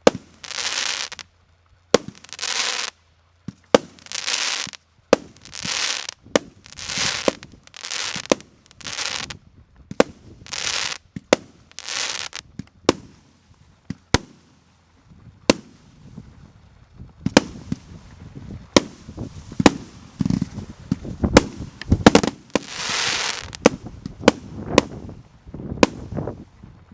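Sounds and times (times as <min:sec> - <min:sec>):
firework hiss: 0:00.0 - 0:01.2, 0:02.0 - 0:03.0, 0:03.7 - 0:09.4, 0:10.0 - 0:13.5, 0:17.3 - 0:25.2
firework shots: 0:00.0 - 0:01.2, 0:01.9 - 0:02.9, 0:03.5 - 0:14.6, 0:15.5 - 0:15.9, 0:17.2 - 0:17.9, 0:18.7 - 0:25.1, 0:25.8 - 0:26.3.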